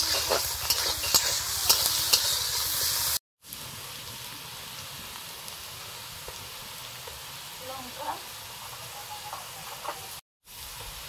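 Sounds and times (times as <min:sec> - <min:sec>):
metal spatula scraping pan: 0:00.0 - 0:03.0
onions sizzling in oil: 0:00.0 - 0:11.0.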